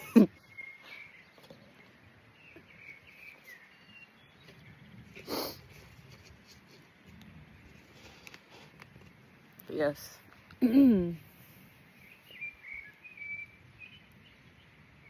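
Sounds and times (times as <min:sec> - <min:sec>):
faint bird chirps: 0:00.0 - 0:05.5, 0:11.9 - 0:14.8
sharp sniff: 0:05.2 - 0:05.8.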